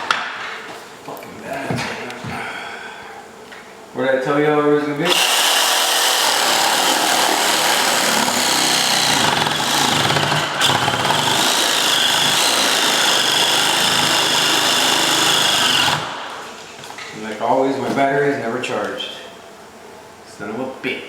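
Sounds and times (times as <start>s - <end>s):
cordless power tool whining: 5.1s - 16.4s.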